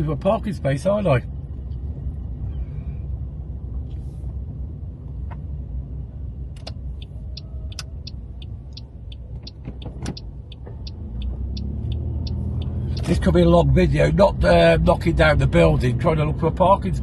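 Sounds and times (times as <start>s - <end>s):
car engine and road rumble: 0.0s - 17.0s
turn indicator ticking: 6.3s - 15.4s.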